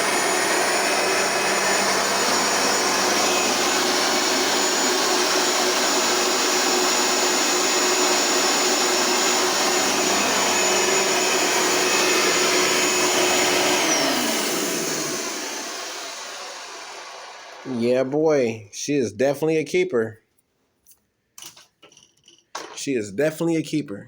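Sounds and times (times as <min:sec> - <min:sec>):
vacuum cleaner motor running: 0:00.0 - 0:18.2.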